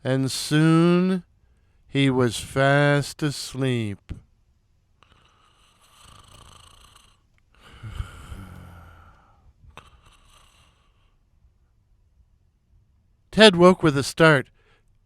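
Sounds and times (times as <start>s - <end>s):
man snoring: 5.1s - 10.9s.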